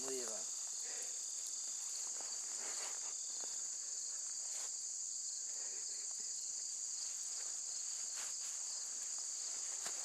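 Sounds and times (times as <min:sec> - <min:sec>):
crickets trilling: 0:00.0 - 0:10.0
faint ticks and rustles: 0:06.9 - 0:10.0.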